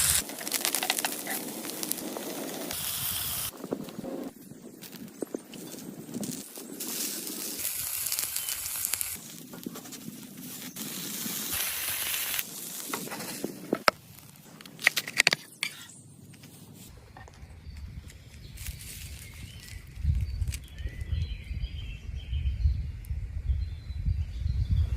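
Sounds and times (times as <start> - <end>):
cooking hissing and crackling: 0.0 - 15.9, 16.9 - 20.9.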